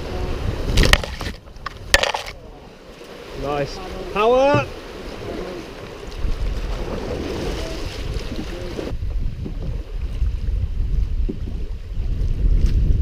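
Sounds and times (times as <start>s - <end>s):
river water rushing: 0.0s - 8.9s
wind rumbling on microphone: 0.0s - 13.0s.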